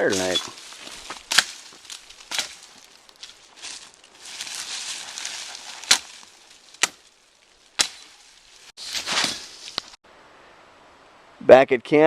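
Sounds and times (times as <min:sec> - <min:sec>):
rustling: 0:00.0 - 0:10.0
axe chopping wood: 0:01.2 - 0:01.7, 0:02.3 - 0:02.6, 0:06.8 - 0:07.0, 0:07.8 - 0:08.1.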